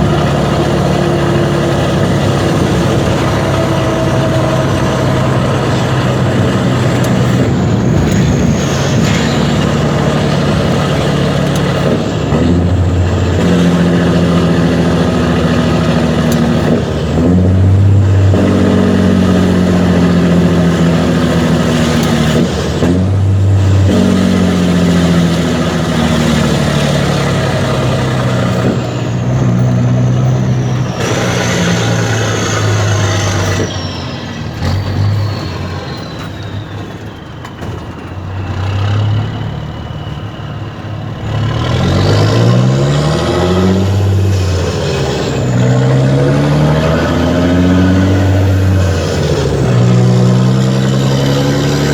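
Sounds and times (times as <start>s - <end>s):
diesel truck engine running: 0.0s - 51.9s
faint high whistle: 29.6s - 37.9s.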